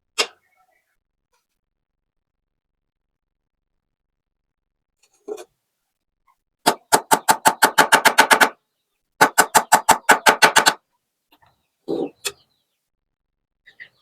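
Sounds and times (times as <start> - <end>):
rapid sharp knocks: 6.7 - 8.6, 9.2 - 10.8.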